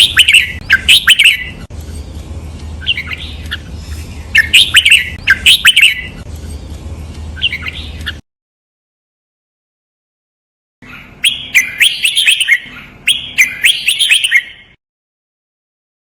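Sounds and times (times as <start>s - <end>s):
bird singing whistled phrases: 0.0s - 1.6s, 2.8s - 6.2s, 7.4s - 8.2s, 10.8s - 14.8s.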